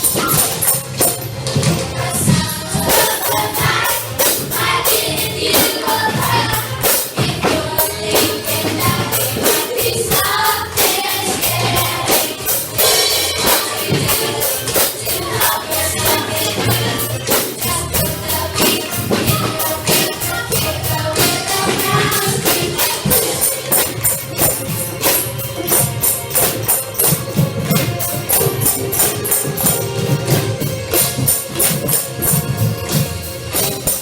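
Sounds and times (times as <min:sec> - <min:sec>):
voices singing: 0:00.0 - 0:24.8
percussion beat with shaker: 0:00.0 - 0:34.0.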